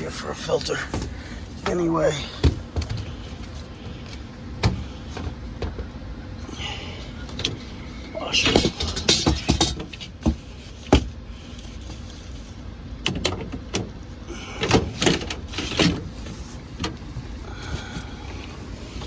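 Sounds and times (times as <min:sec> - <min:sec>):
steady low hum: 0:00.0 - 0:19.0
knocks and clatters: 0:08.4 - 0:11.2.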